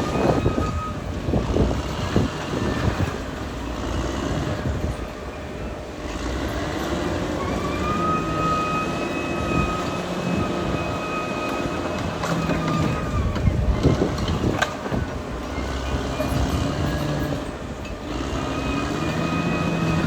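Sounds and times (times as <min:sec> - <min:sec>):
bulldozer diesel engine running: 0:00.0 - 0:20.0
steady machine whine: 0:00.0 - 0:20.0.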